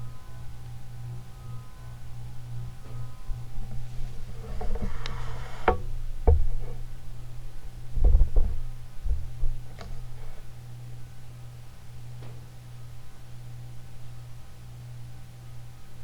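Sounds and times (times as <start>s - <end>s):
ceiling fan motor humming: 0.0s - 16.0s
sharp knocks: 4.6s - 6.8s.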